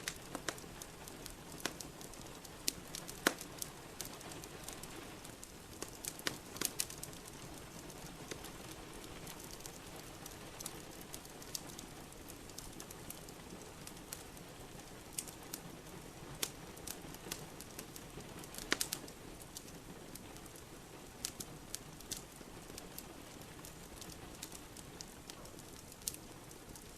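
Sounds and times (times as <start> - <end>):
sharp fire pops: 0.0 - 4.8, 16.4 - 19.7
wood fire crackling: 0.0 - 26.9.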